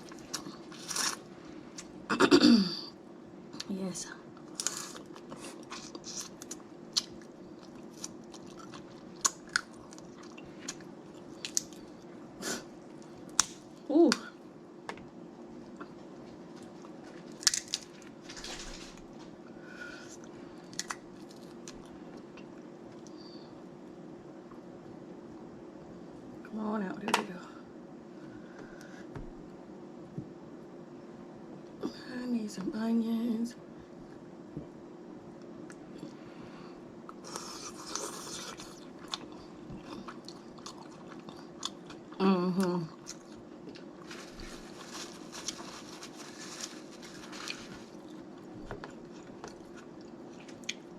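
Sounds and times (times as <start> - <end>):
faint steady hum: 0.0 - 50.9
chewing: 4.6 - 12.0, 37.1 - 42.1
crab shells cracking: 17.3 - 17.9.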